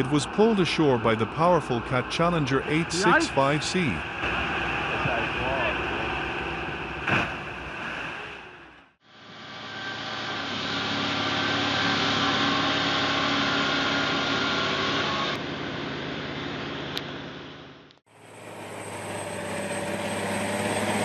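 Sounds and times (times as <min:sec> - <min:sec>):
heavy machine engine running: 0:09.1 - 0:21.0.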